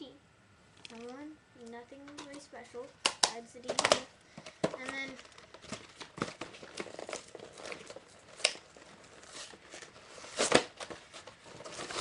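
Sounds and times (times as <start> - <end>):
packaging crinkle: 3.2 - 12.0
plastic and cardboard rustling: 3.6 - 12.0.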